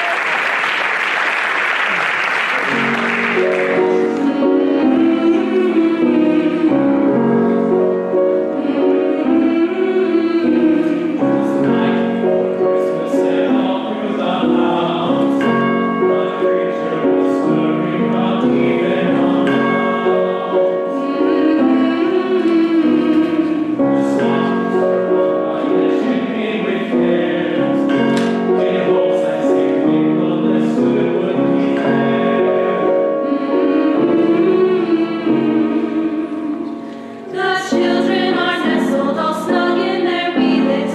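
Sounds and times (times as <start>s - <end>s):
choir singing a carol: 2.7s - 40.9s.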